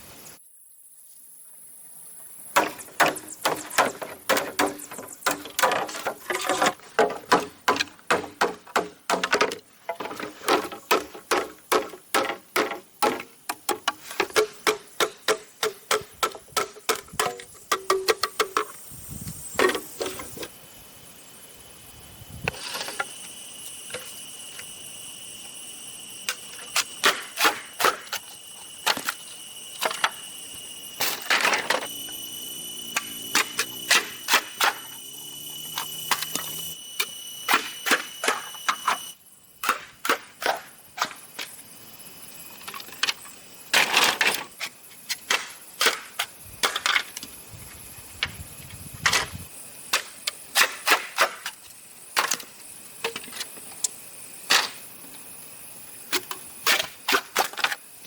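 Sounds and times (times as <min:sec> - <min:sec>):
hand tools knocking on bamboo: 0:02.6 - 0:18.8
steady high-pitched tones: 0:14.0 - 0:39.5.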